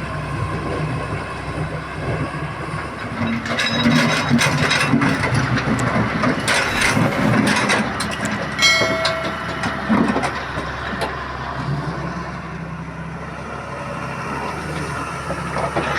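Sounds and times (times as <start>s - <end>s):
excavator diesel engine running: 0.0s - 15.9s
ringing metal clang: 8.6s - 10.3s.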